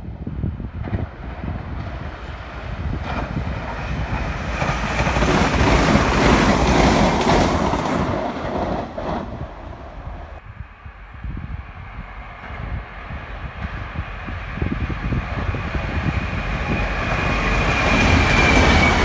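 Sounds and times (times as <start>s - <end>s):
train passing rumble: 0.0s - 19.0s
wind buffeting microphone: 0.0s - 19.0s.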